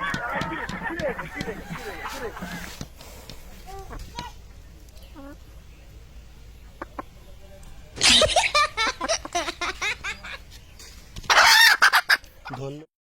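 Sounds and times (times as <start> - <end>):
chicken squawking and clucking: 0.0 - 2.9, 3.5 - 4.4, 5.1 - 5.6, 6.6 - 7.2, 8.0 - 10.5, 11.3 - 12.7.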